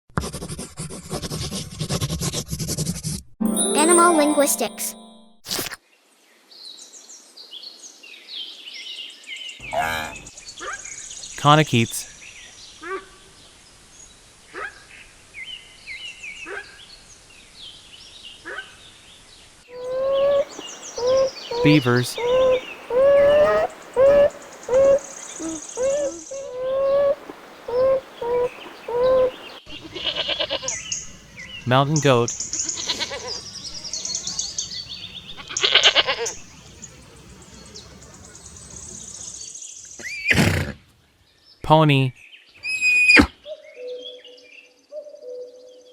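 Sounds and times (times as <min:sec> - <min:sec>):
animal upward sweeping calls: 0:19.8 - 0:30.3
birds chirping: 0:19.8 - 0:40.0
goat bleating: 0:29.7 - 0:30.7, 0:32.7 - 0:33.4, 0:35.4 - 0:36.3.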